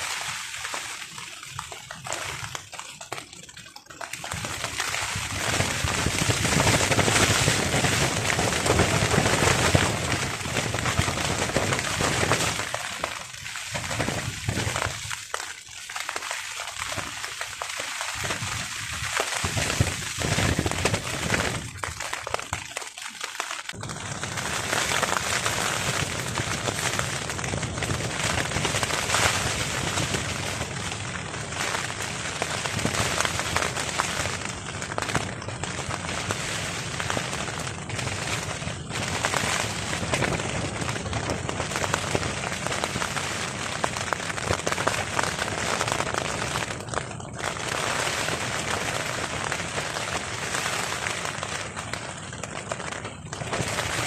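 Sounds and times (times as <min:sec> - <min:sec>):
heavy rain on a tarp: 0:00.0 - 0:54.0
wind rumble: 0:05.2 - 0:12.8, 0:18.2 - 0:22.0.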